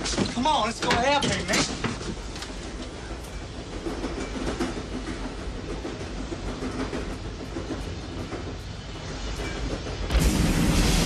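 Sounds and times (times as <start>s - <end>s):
freight train rumbling on rails: 0.0s - 11.0s.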